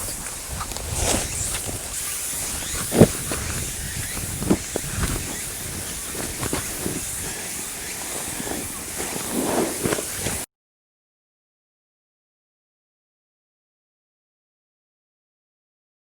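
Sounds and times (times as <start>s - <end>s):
cicada chorus: 0.0s - 10.4s.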